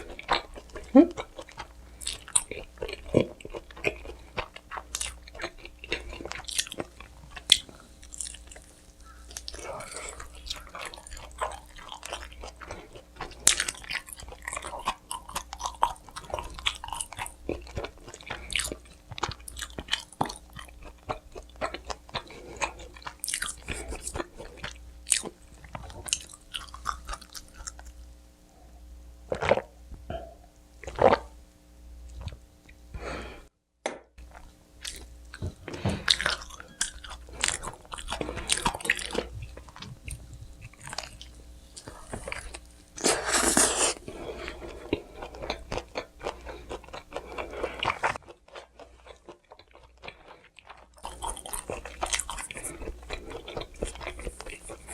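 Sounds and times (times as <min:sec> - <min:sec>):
moist chewing: 0:44.7 - 0:54.9.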